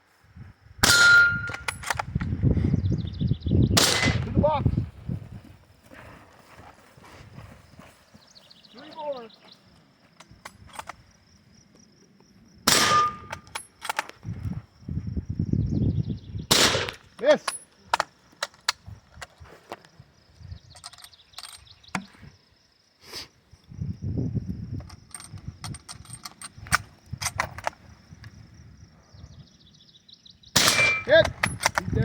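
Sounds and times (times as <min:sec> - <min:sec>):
rifle shots: 0:00.8 - 0:02.0, 0:03.8 - 0:04.3, 0:12.7 - 0:13.5, 0:16.5 - 0:17.0, 0:30.6 - 0:31.6
small clicks and knocks: 0:20.7 - 0:22.1, 0:24.8 - 0:27.8.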